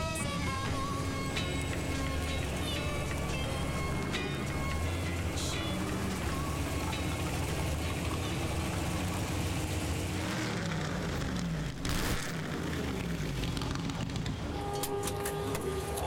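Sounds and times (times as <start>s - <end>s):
racing car engines at low revs: 0.0s - 16.0s
loud engine blast: 4.5s - 14.4s.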